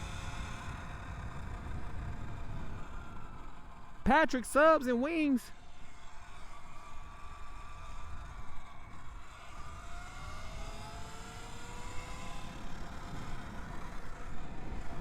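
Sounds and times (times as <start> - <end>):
wind rumble on microphone: 0.0 - 3.9.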